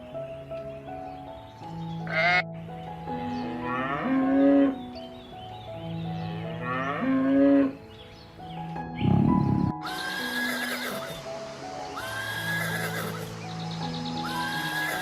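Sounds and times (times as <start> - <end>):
background music: 0.0 - 15.0
livestock bleating: 2.1 - 2.4, 9.8 - 11.1, 12.0 - 13.3, 14.2 - 15.0.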